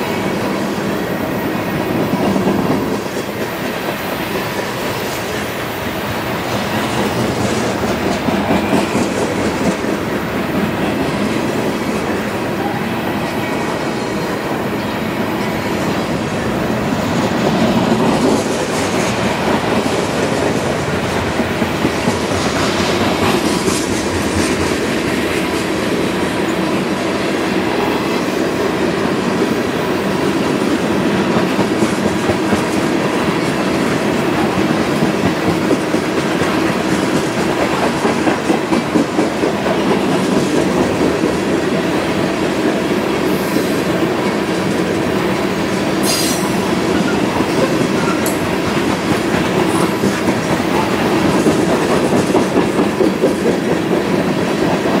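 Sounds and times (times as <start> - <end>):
freight train wheels rumbling: 0.0 - 55.0
wheels clacking over rail joints: 43.9 - 55.0.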